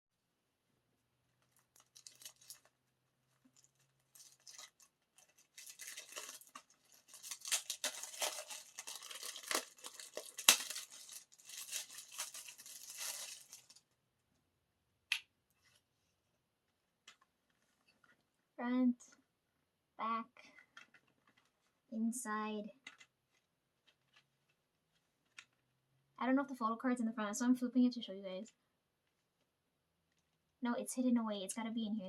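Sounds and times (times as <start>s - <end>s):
plastic wrapping crinkling: 1.4s - 13.9s.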